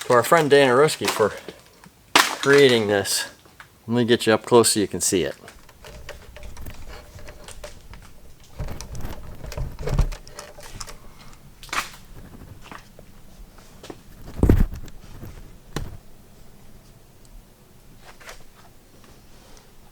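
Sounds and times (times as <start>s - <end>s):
camera handling knocks and clicks: 5.6s - 11.0s.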